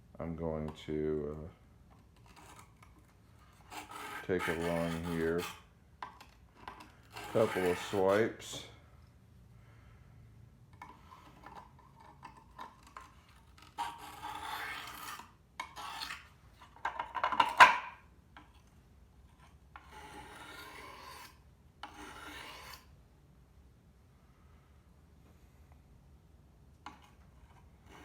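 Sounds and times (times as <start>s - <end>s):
blade scraping on sharpening stone: 3.6s - 5.7s, 6.7s - 8.6s, 12.3s - 16.3s, 19.8s - 22.9s.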